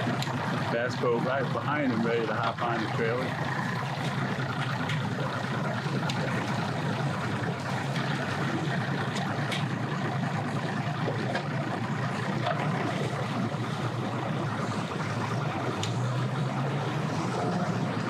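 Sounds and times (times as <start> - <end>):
outboard motors running: 0.0 - 18.0.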